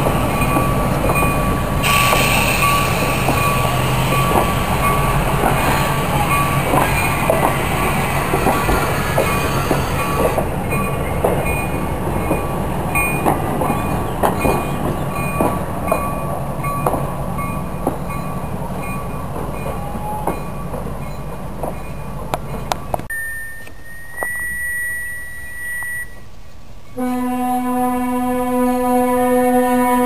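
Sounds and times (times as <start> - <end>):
train rumbling: 0.0 - 23.1
wheels clicking over rail joints: 0.0 - 24.3.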